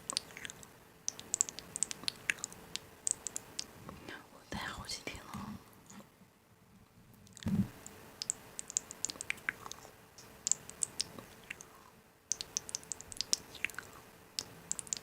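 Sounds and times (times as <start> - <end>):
small sharp clicks and crackles: 0.0 - 3.7, 7.2 - 11.7, 12.3 - 15.0.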